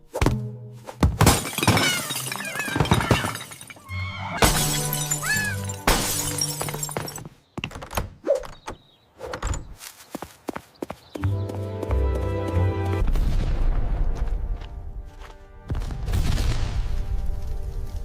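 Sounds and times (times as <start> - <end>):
loud crashes and shattering: 1.2 - 7.2.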